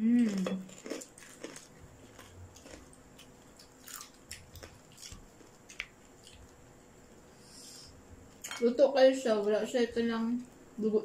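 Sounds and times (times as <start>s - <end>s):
chewing and biting: 0.3s - 6.6s.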